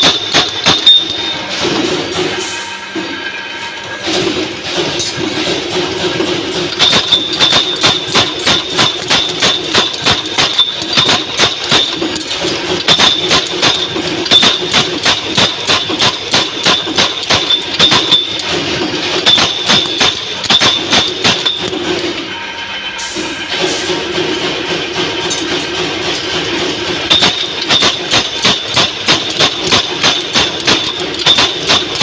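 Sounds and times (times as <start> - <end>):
punch press stamping strokes: 0.0 - 2.5, 4.1 - 22.2, 23.6 - 32.0
machine humming: 0.0 - 32.0.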